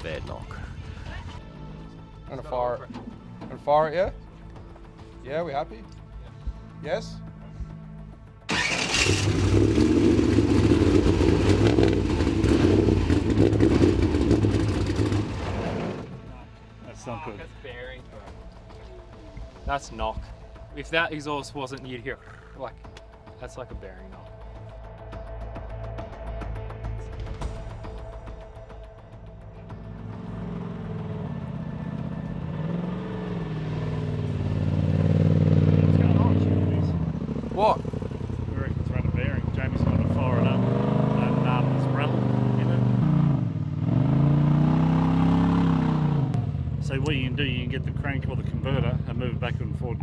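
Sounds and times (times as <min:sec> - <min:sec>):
engine knocking: 0:08.5 - 0:15.6
truck engine running loud: 0:08.5 - 0:16.4, 0:29.8 - 0:50.0.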